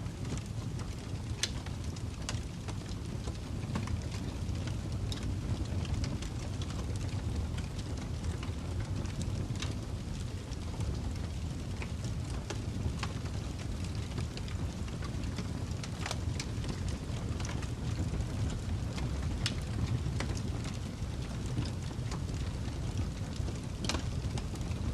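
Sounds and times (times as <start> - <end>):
wood fire crackling: 0.0 - 24.9.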